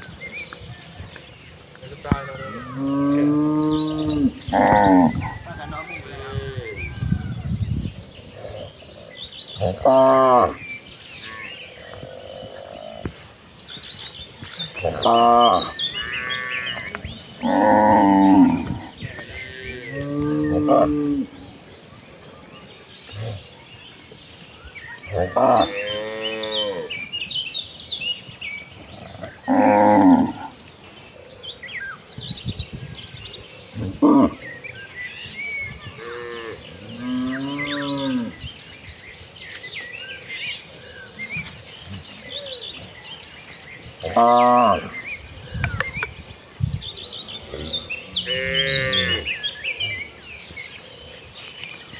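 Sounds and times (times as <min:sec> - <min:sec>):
cattle mooing: 0:02.1 - 0:05.4, 0:09.6 - 0:10.6, 0:14.7 - 0:21.3, 0:47.5 - 0:49.4.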